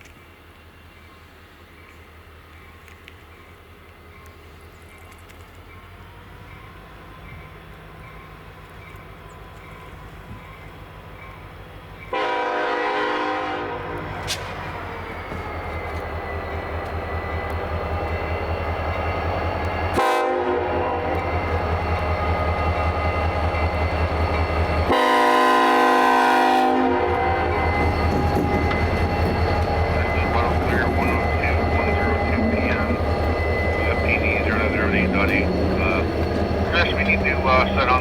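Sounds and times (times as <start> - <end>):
locomotive engine rumbling: 0.0 - 38.0
locomotive horn blasts: 12.1 - 14.2, 19.9 - 21.4, 24.8 - 27.7.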